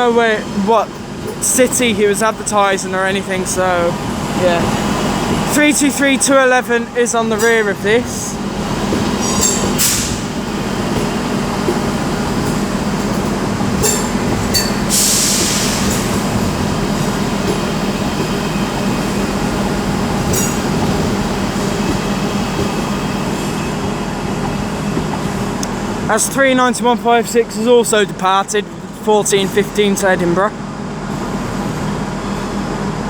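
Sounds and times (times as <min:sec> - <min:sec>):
train motor hum: 0:00.0 - 0:33.0.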